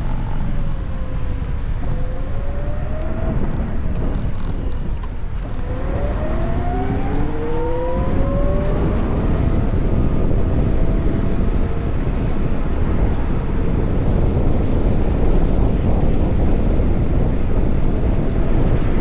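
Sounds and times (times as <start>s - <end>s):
electric motorcycle motor whine: 0.0s - 14.8s
wind rumbling on microphone: 0.0s - 19.0s.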